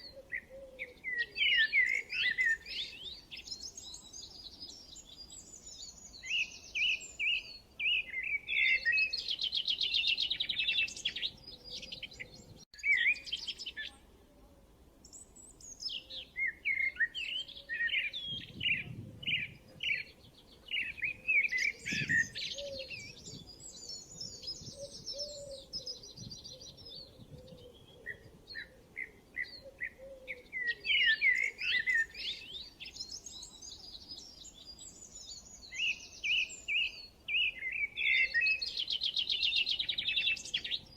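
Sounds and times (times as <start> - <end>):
songbirds chirping and singing: 0.0 - 14.1, 15.0 - 40.9.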